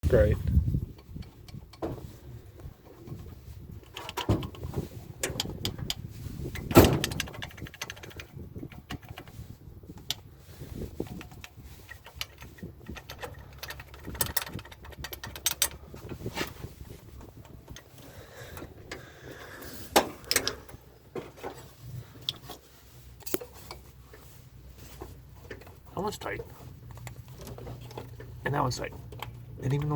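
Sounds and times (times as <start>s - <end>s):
hand tools clicking and clinking: 2.9s - 9.4s, 11.0s - 16.3s, 17.1s - 22.5s.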